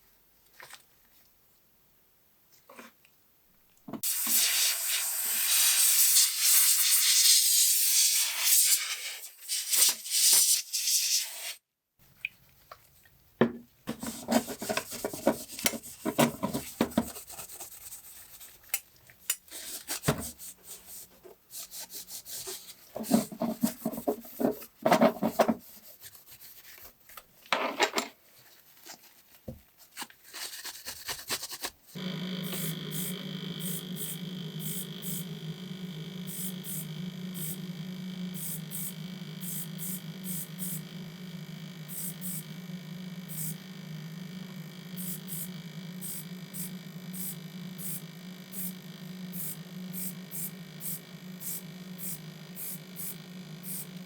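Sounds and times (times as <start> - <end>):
steady hum: 32.0 - 54.0.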